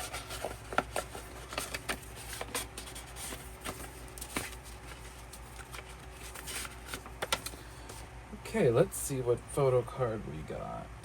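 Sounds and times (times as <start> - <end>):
paper rustling: 0.0 - 8.1.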